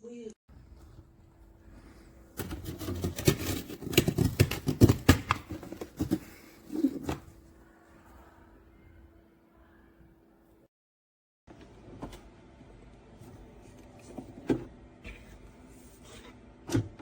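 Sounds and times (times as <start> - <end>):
plastic fridge rattling when handled: 2.4 - 7.4.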